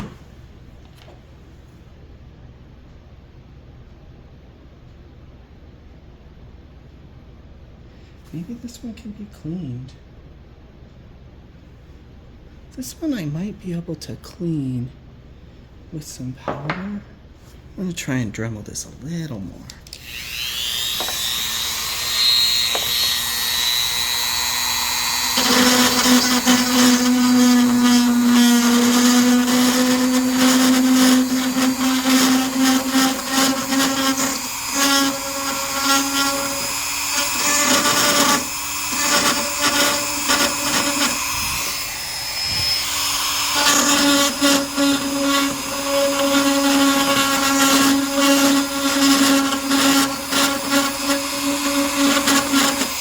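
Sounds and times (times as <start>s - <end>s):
rotary tool grinding: 19.9s - 53.0s.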